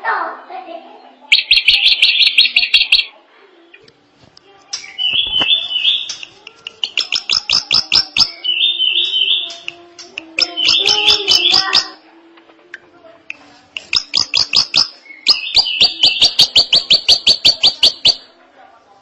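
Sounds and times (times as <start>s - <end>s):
bird singing rapid repeated notes: 1.3s - 3.1s, 4.8s - 12.0s, 13.8s - 18.3s.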